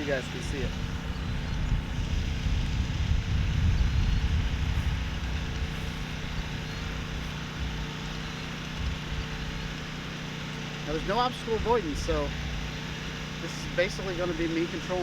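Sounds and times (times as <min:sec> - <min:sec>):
drone propellers humming: 0:00.0 - 0:15.0
wind rumble on microphone: 0:00.4 - 0:09.8, 0:11.5 - 0:12.7.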